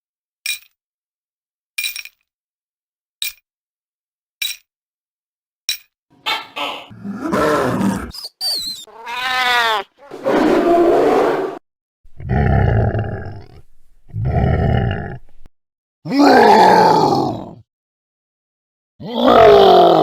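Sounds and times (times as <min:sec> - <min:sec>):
monster growl: 0:06.9 - 0:08.2, 0:10.1 - 0:15.4, 0:16.1 - 0:17.6, 0:19.0 - 0:20.0
monster roars: 0:06.9 - 0:08.2, 0:10.0 - 0:11.6, 0:12.2 - 0:15.2, 0:16.1 - 0:17.6, 0:19.0 - 0:20.0
pitched howl: 0:06.9 - 0:08.2.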